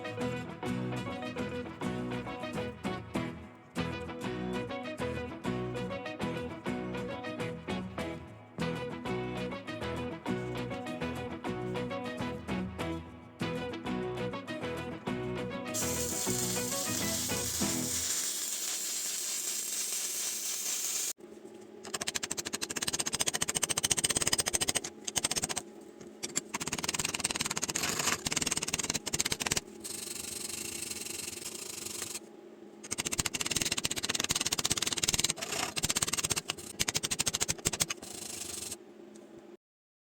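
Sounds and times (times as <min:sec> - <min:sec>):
welding arc crackling and sizzling: 0:15.7 - 0:21.2, 0:26.2 - 0:38.8.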